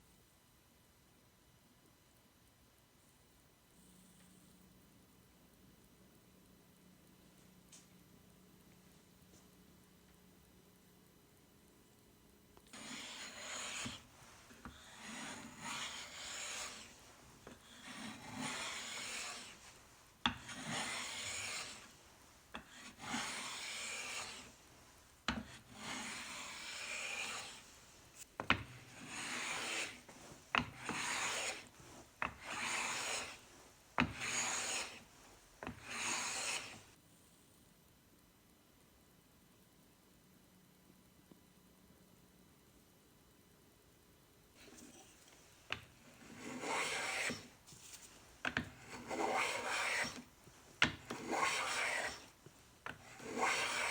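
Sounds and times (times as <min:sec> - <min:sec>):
hand plane shaving wood: 0:12.8 - 0:36.9, 0:44.6 - 0:53.9.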